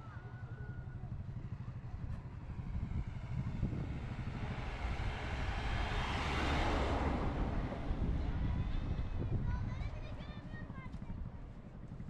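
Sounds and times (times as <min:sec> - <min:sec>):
vehicle rumble: 0:01.0 - 0:10.1.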